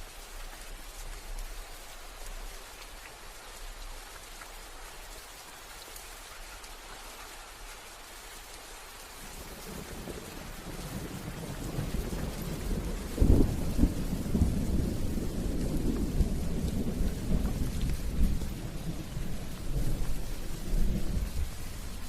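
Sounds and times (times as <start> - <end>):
steady rain: 0.0 - 22.0
rolling thunder rumble: 9.7 - 22.0.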